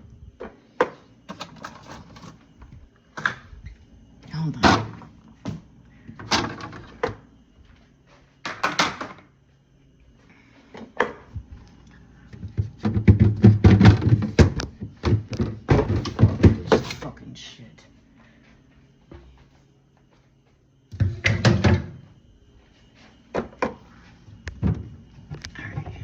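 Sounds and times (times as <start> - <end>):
knocks and rustles: 12.3 - 17.0.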